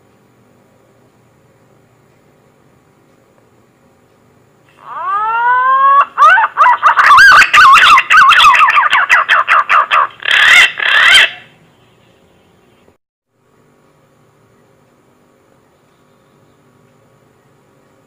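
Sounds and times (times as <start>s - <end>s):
pigeon whistling call: 4.9s - 11.5s.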